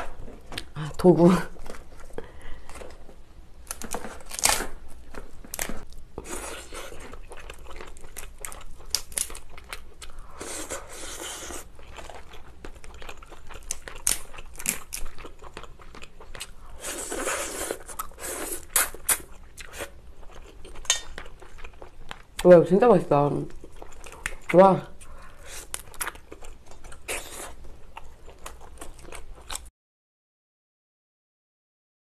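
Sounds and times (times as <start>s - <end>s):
close chewing: 3.8s - 22.5s, 23.5s - 29.7s
crab shell cracking: 13.6s - 15.1s.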